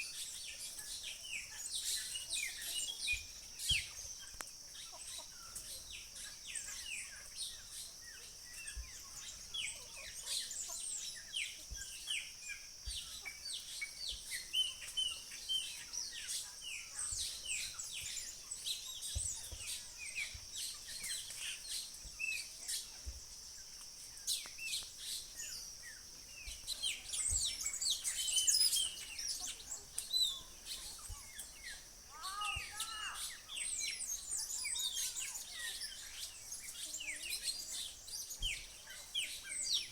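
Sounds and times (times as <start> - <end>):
small birds chirping: 0.0 - 39.9
lower fuller bird call: 32.1 - 33.5.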